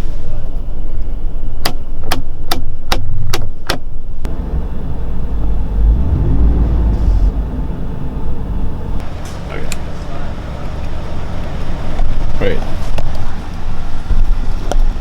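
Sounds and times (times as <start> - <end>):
engine low rumble: 4.2 - 15.0.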